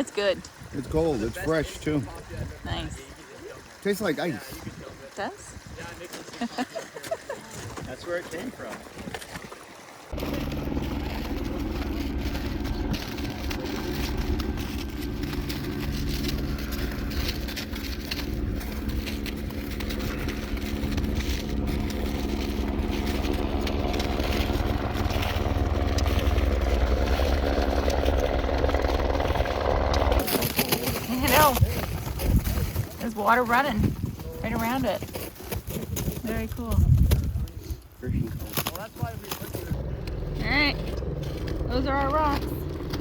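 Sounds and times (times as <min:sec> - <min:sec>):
helicopter engine and rotor: 0:10.1 - 0:31.6, 0:39.8 - 0:43.0.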